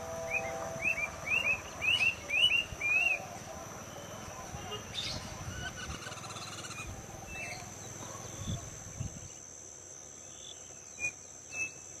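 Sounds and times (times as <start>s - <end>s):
bird chirps: 0.0s - 8.6s
insects trilling: 0.0s - 12.0s.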